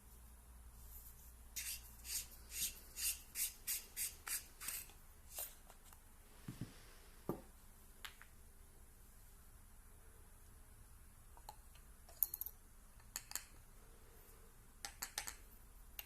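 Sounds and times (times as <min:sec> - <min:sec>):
scratchy rubbing strokes: 0:00.8 - 0:05.5.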